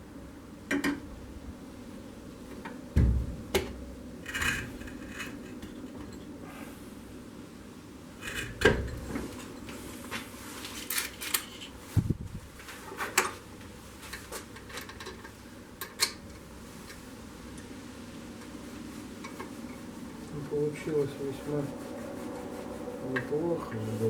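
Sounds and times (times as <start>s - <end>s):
steady low hum: 0.0s - 11.0s, 15.0s - 24.0s
low thud: 3.0s - 3.6s.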